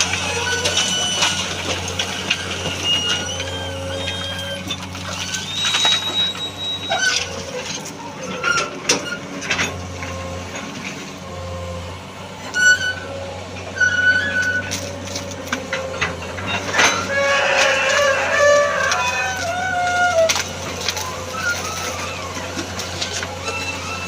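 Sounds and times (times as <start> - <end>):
excavator engine running: 0.0 - 24.0
short high squeaks: 0.2 - 1.5, 2.4 - 9.3, 12.4 - 15.0, 20.9 - 24.0.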